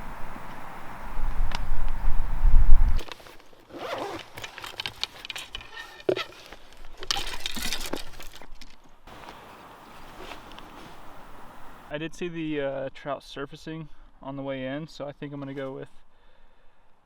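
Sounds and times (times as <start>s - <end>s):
wind buffeting microphone: 0.0s - 3.0s
zipper pulled: 3.0s - 7.3s
rustling and clicks of gear: 3.0s - 11.2s.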